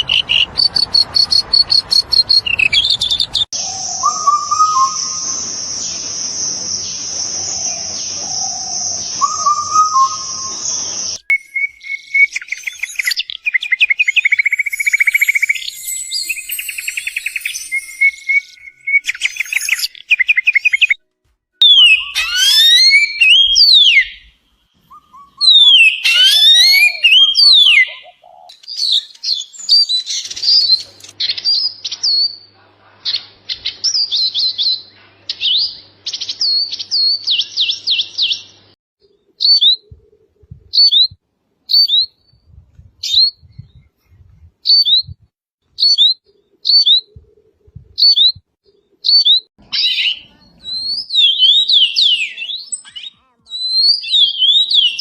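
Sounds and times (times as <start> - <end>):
whistled bird phrases: 2.2 - 5.5, 7.6 - 21.0, 21.6 - 30.8, 49.1 - 55.0
short downward bird chirps: 11.3 - 21.0, 21.6 - 30.9
rapid bird trill: 25.2 - 30.9.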